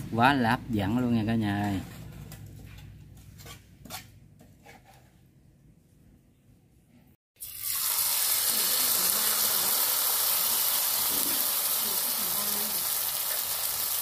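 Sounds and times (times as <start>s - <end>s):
batter sizzling in hot oil: 7.4s - 14.0s.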